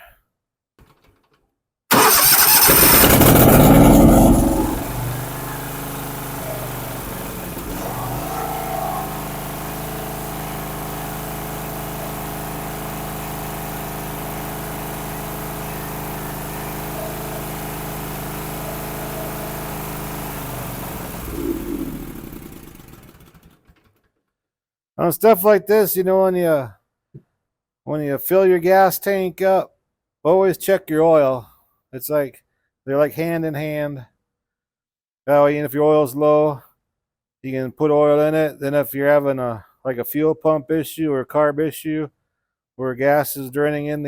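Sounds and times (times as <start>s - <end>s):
lawn mower engine running: 1.9s - 23.6s.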